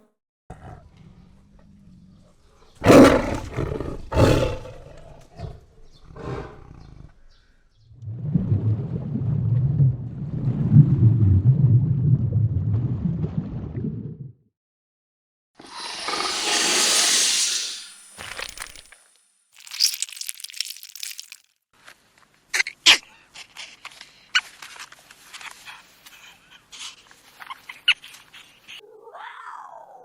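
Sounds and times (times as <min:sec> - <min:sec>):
low growl: 0:00.5 - 0:07.2
large animal roaring: 0:02.8 - 0:07.1.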